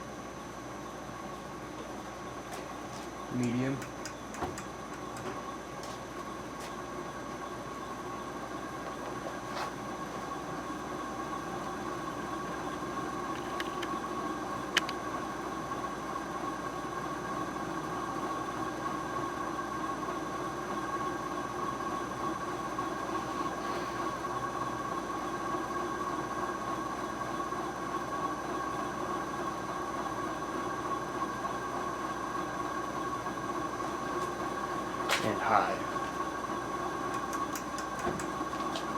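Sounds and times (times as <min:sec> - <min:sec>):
ceiling fan running: 0:00.0 - 0:38.9
sharp click: 0:14.7 - 0:15.0, 0:37.1 - 0:38.4.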